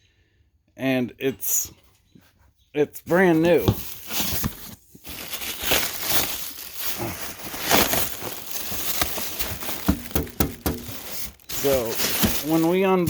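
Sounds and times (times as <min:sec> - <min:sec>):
crinkling and rustling: 0:03.1 - 0:13.0.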